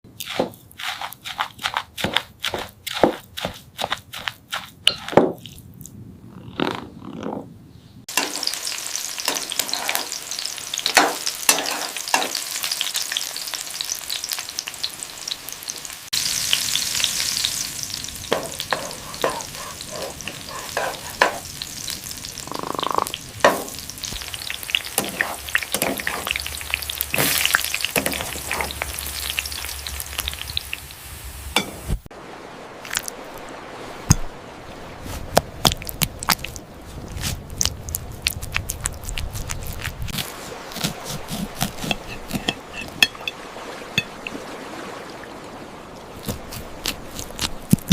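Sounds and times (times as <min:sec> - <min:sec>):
food sizzling in hot oil: 0:08.1 - 0:32.1.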